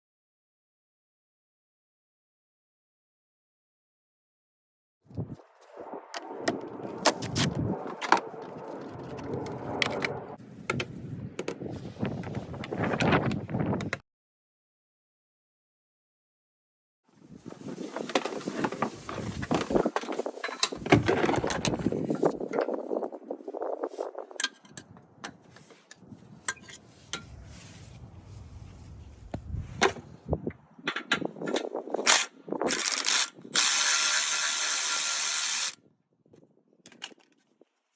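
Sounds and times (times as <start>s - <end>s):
steady low noise: 27.2s - 30.3s.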